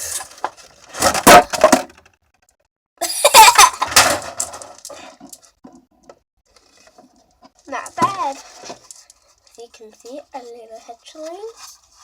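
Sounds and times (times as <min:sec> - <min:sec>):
person laughing: 0:03.0 - 0:03.9.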